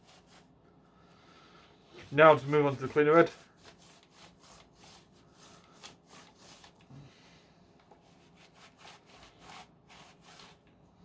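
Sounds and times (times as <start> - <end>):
faint scrubbing strokes: 1.6 - 7.4.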